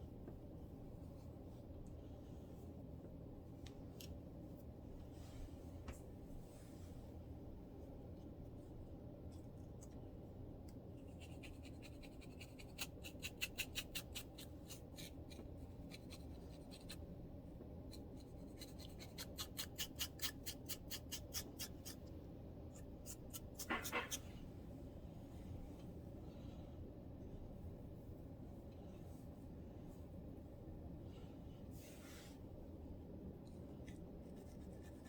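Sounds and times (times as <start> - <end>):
fingers scratching scalp: 11.1 - 17.0, 18.0 - 22.0.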